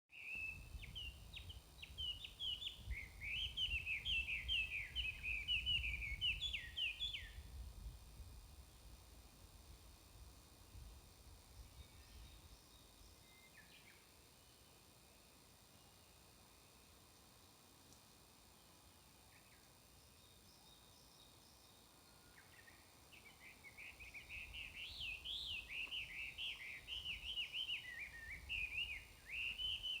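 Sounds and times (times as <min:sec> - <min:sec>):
songbird singing: 0:00.1 - 0:07.6, 0:11.5 - 0:14.8, 0:18.6 - 0:30.0
microphone hiss: 0:00.1 - 0:30.0
songbird warbling: 0:22.6 - 0:30.0.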